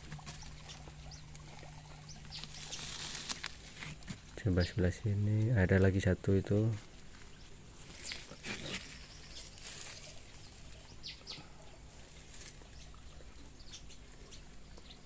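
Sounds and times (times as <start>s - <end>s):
birds chirping: 0.0s - 15.0s
faint rustling: 2.2s - 4.4s, 6.7s - 12.9s.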